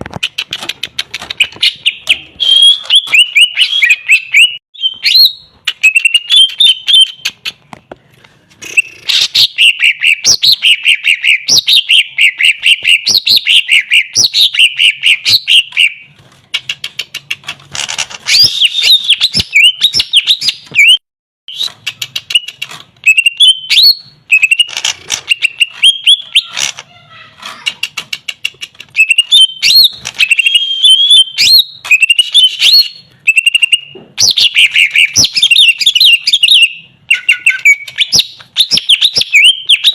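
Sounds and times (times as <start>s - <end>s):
bird singing whistles and chirps: 1.8s - 7.3s, 18.3s - 24.7s, 29.0s - 39.9s.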